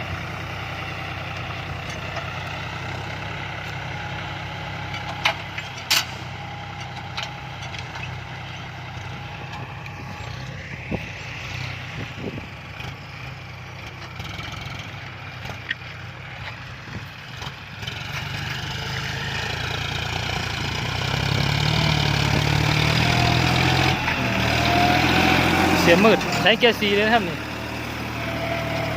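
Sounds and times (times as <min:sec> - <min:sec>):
tractor diesel engine under load: 0:00.0 - 0:28.9.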